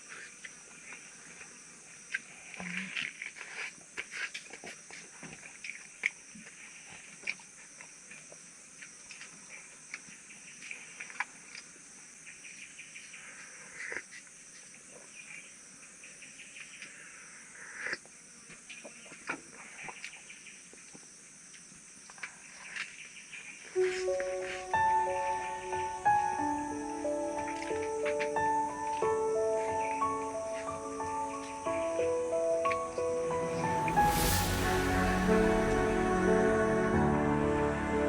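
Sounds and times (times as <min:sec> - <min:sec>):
insects chirping: 0:23.8 - 0:34.6
background music: 0:23.8 - 0:38.0.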